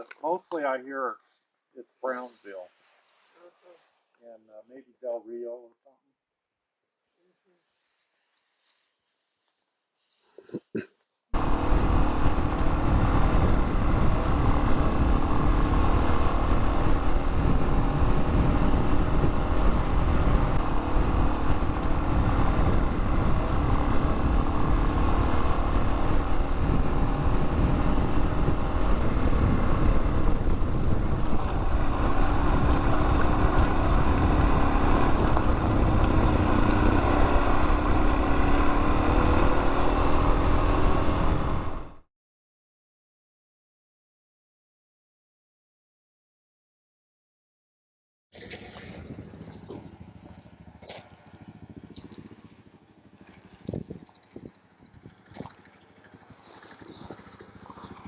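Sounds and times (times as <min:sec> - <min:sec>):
motorcycle engine running: 0:11.4 - 0:42.0, 0:48.4 - 0:58.0.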